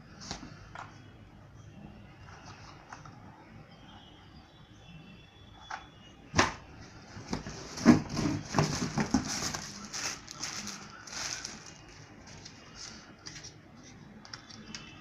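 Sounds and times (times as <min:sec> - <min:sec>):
clattering and rustling packaging: 0:07.1 - 0:15.0.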